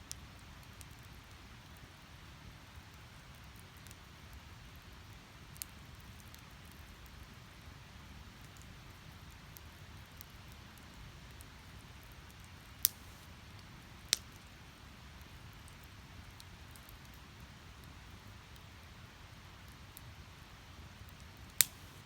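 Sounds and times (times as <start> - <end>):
faint crackles of fire: 0.0 - 22.0
fire flames rumbling: 12.7 - 14.2, 21.0 - 22.0.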